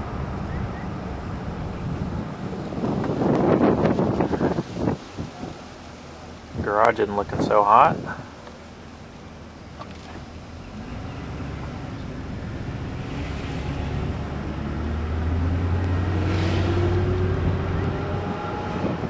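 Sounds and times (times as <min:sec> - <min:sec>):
vehicle engine passing by: 0:10.6 - 0:19.0.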